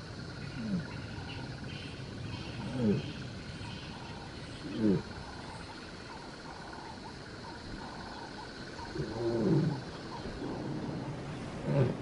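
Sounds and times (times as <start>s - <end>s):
lion moaning call: 2.6s - 3.3s, 4.6s - 5.4s, 8.8s - 12.0s.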